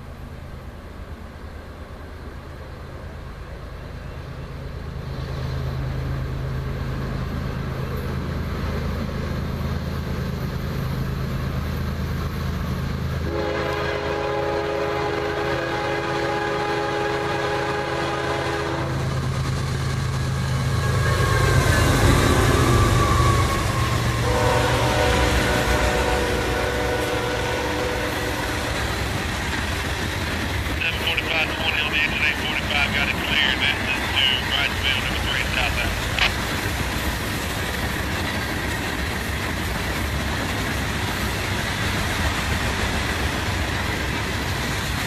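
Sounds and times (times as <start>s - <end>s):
diesel locomotive engine rumble: 0.0s - 45.0s
train wheels on rails: 0.0s - 45.0s
train horn blast: 13.2s - 19.1s, 20.8s - 29.0s.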